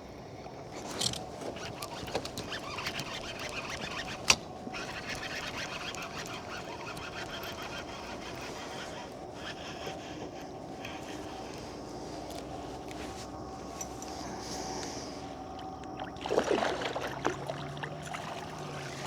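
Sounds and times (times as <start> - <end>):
birds calling: 0.3 - 16.3.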